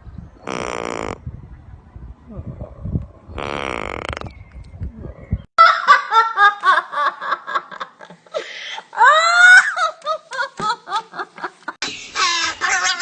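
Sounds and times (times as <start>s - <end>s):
high-pitched laughing: 8.8s - 13.0s.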